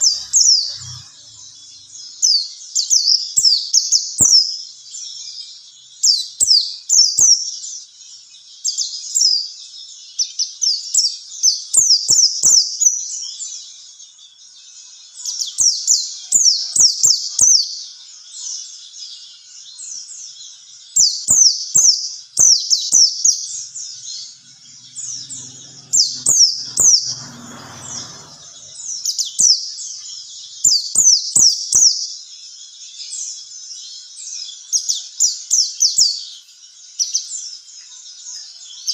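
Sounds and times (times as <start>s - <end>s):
high twittering bird chirps: 0.0s - 38.9s
brief low rumble: 24.1s - 29.2s.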